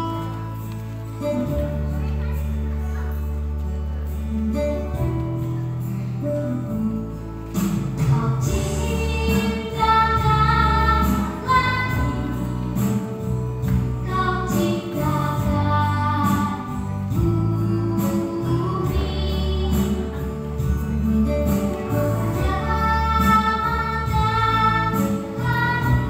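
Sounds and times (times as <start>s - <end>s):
child singing: 8.0s - 12.8s, 14.0s - 20.3s, 21.4s - 26.0s.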